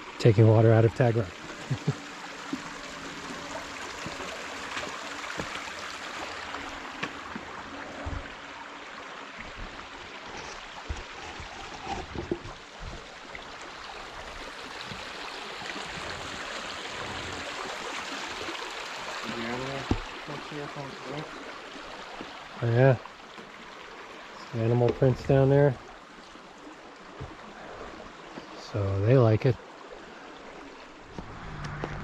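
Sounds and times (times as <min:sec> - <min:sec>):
mountain stream rushing: 0:00.0 - 0:32.0
dull low thumps: 0:31.1 - 0:32.0.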